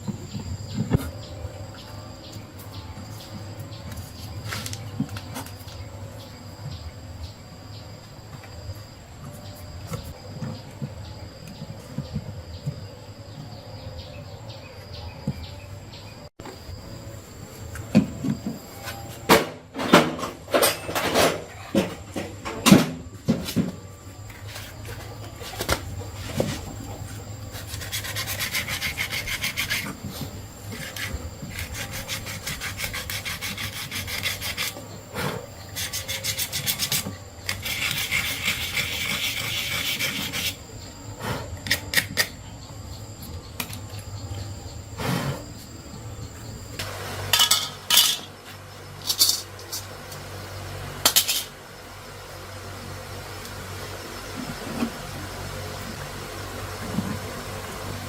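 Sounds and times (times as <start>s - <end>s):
rasping scraping strokes: 27.5s - 40.6s.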